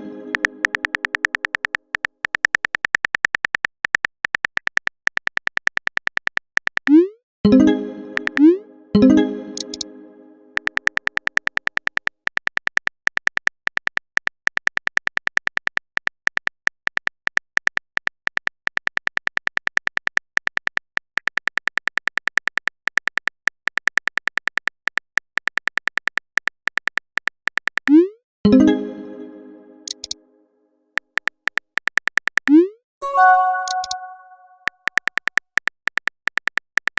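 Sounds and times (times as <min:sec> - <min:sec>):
typing sound effect ticks with beeps: 0:00.3 - 0:07.2, 0:08.2 - 0:08.5, 0:09.6 - 0:09.8, 0:10.6 - 0:24.6, 0:29.8 - 0:30.2, 0:31.2 - 0:36.9.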